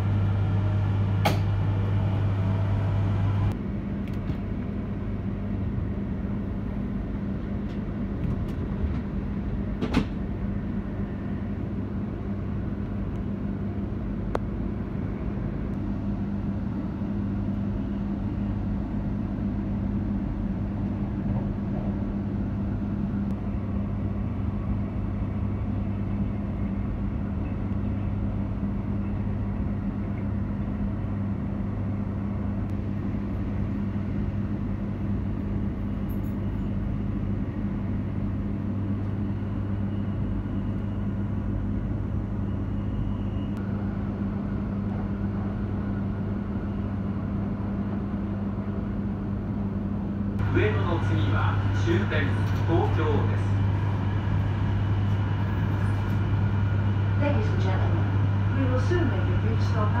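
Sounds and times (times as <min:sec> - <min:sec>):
train cabin rumble and hum: 0:00.0 - 1:00.0.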